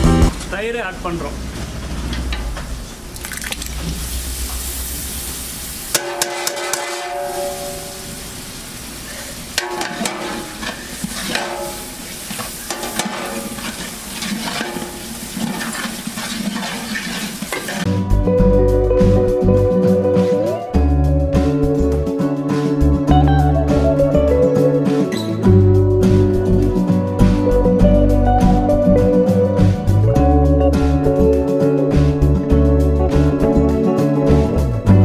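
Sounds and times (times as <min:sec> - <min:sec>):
music: 0:00.0 - 0:00.4, 0:17.9 - 0:35.0
food sizzling in a pot: 0:02.9 - 0:17.9
utensil scraping a pot: 0:09.7 - 0:11.6, 0:12.3 - 0:17.9.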